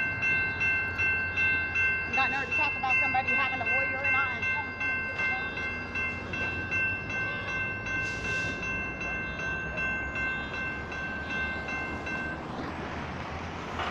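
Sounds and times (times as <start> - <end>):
diesel locomotives rumbling: 0.0 - 13.9
railroad crossing bells dinging: 0.0 - 13.9.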